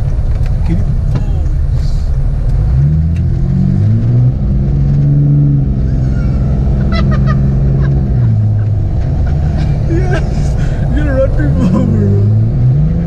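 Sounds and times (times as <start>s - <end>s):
diesel engine accelerating: 0.0s - 13.0s.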